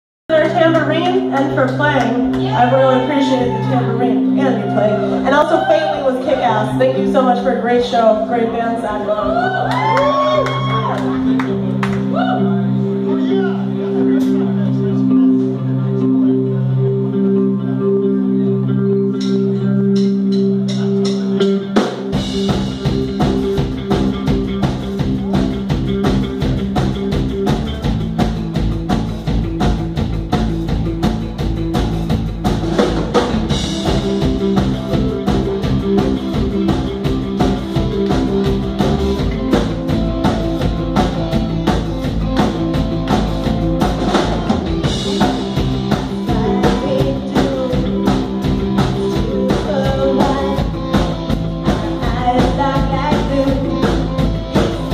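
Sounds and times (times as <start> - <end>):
held electric guitar notes: 0.3 - 54.9
drum kit steady beat: 19.2 - 54.9.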